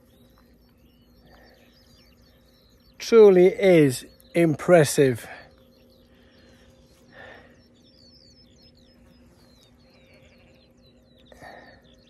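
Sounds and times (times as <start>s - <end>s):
low steady hum: 0.0s - 12.0s
small bird chirping: 0.0s - 12.0s.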